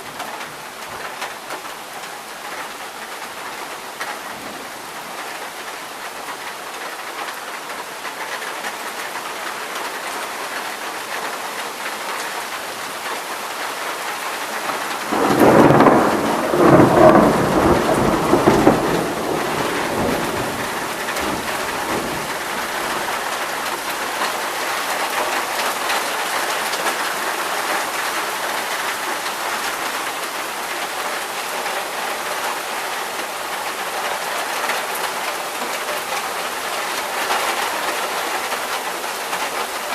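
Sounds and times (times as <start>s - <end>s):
steady rain: 0.0s - 39.9s
rumbling thunderclap: 15.0s - 23.4s.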